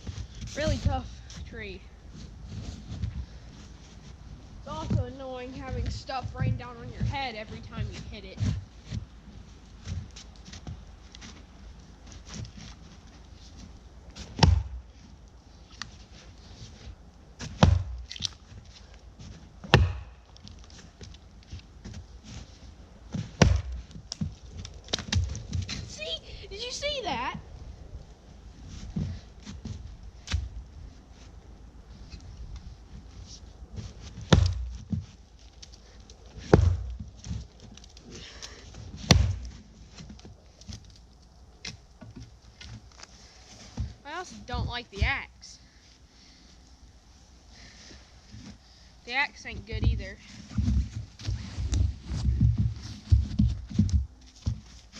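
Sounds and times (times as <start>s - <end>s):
axe chopping tree trunk: 14.2s - 14.9s, 17.4s - 18.4s, 19.6s - 20.3s, 23.1s - 25.8s, 34.2s - 35.1s, 36.4s - 37.9s, 38.9s - 39.6s.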